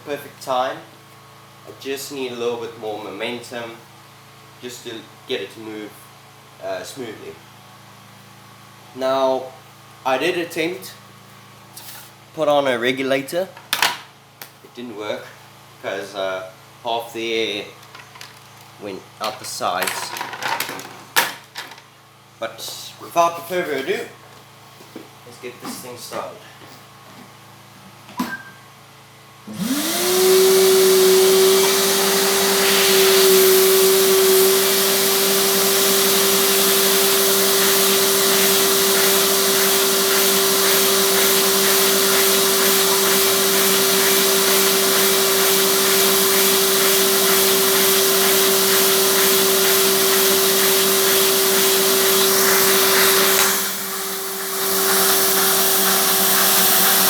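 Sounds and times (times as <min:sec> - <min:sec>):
vacuum cleaner motor whine: 0:29.4 - 0:57.0.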